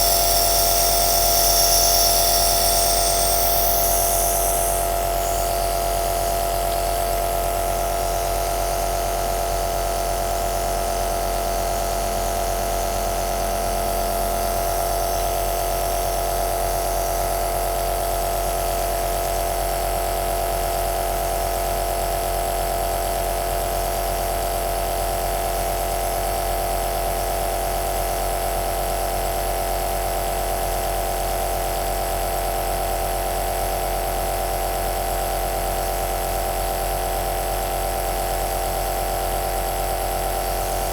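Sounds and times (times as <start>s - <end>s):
nebulizer hiss: 0.0s - 5.6s
nebulizer motor hum: 0.0s - 8.1s.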